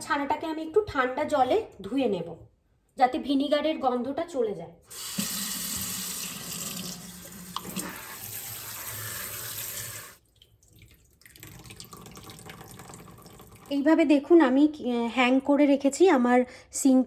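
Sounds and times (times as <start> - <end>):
tap water running into strainer: 4.9 - 13.8.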